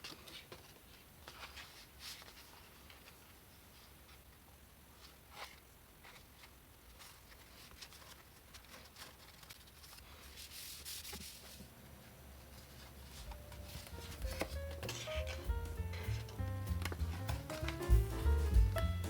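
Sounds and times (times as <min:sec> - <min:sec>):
paper and card rustling: 0:00.0 - 0:19.0.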